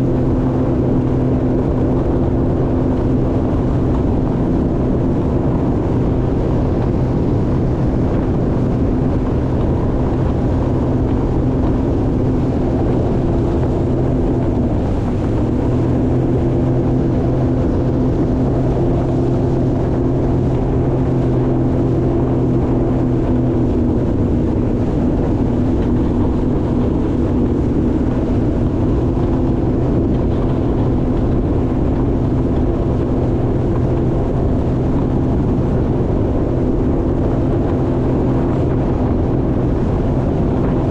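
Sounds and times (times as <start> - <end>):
jet ski engine running: 0.0 - 40.9
wind buffeting microphone: 0.0 - 40.9.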